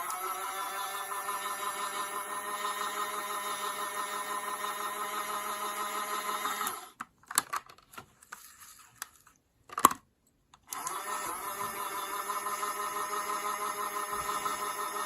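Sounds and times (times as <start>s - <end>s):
small electric motor humming: 10.8s - 15.0s.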